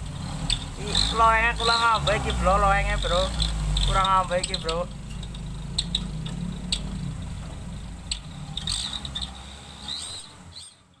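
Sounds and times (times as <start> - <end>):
engine idling: 0.0 - 11.0
faint high chirps: 4.5 - 10.9.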